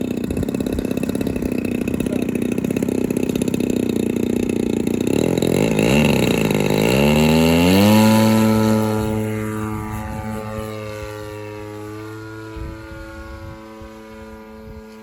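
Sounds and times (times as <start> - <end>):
model plane engine chugging: 0.0 - 15.0.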